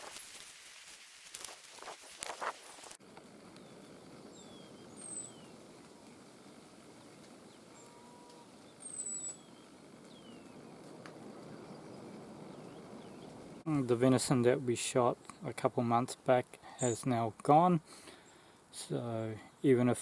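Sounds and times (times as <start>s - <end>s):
faint steady hiss: 0.0s - 20.0s
birds whistling: 3.6s - 5.6s, 8.6s - 10.8s, 11.4s - 13.6s.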